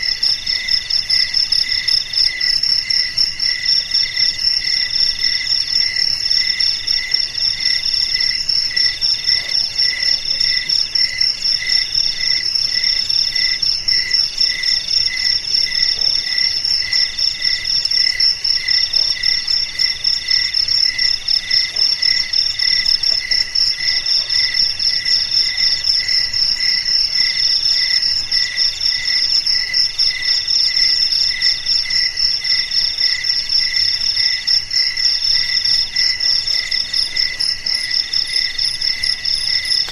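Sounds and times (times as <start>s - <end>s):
low cricket chirp: 0.0s - 39.9s
middle-pitched cricket trill: 0.0s - 39.9s.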